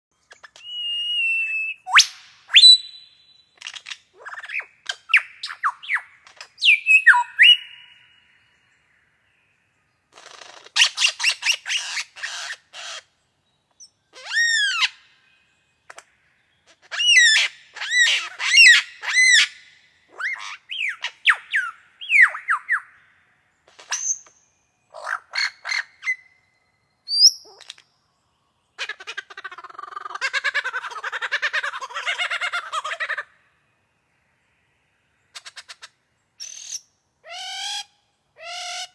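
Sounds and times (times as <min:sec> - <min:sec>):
bird chirping and whistling: 0:00.3 - 0:03.4, 0:04.3 - 0:08.0, 0:20.2 - 0:22.9, 0:27.1 - 0:27.6.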